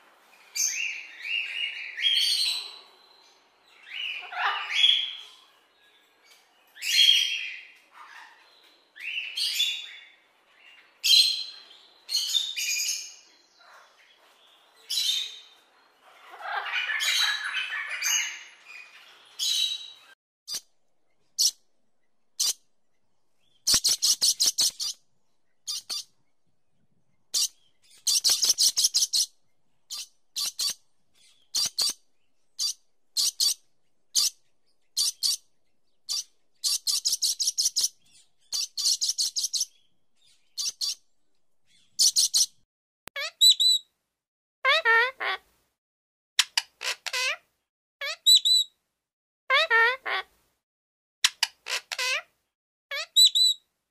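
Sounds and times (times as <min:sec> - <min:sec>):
parrot squawks: 0:03.9 - 0:05.4, 0:16.1 - 0:18.6, 0:43.2 - 0:43.8, 0:44.7 - 0:45.4, 0:46.4 - 0:47.4, 0:48.0 - 0:48.7, 0:49.5 - 0:50.3, 0:51.3 - 0:52.3, 0:52.9 - 0:53.6
rapid high parrot chirps: 0:21.4 - 0:21.6, 0:22.4 - 0:22.6, 0:23.4 - 0:25.0, 0:25.6 - 0:26.2, 0:27.3 - 0:35.5, 0:36.1 - 0:41.0, 0:41.7 - 0:42.6, 0:43.2 - 0:43.9, 0:46.4 - 0:47.4, 0:48.0 - 0:48.8, 0:51.3 - 0:52.3, 0:52.9 - 0:53.7.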